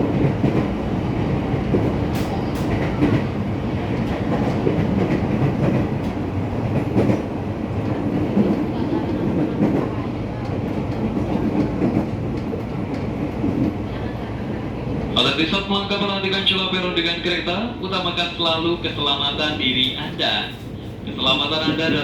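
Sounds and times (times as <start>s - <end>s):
rail joint clicks: 0.0s - 15.1s, 17.9s - 20.8s
train wheels rumbling on rail: 0.0s - 22.0s.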